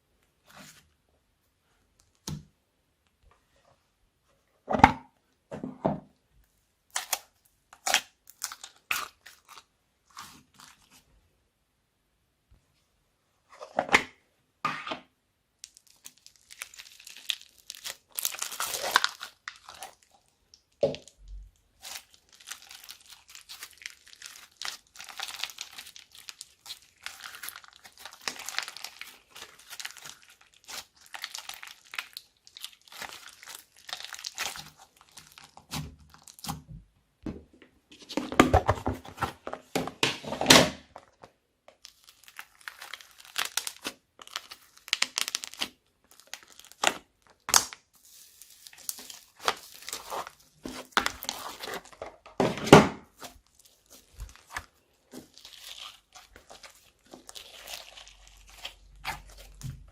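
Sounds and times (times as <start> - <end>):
slime squelching: 6.9 - 11.0, 15.6 - 36.7, 41.8 - 52.2, 53.0 - 59.9.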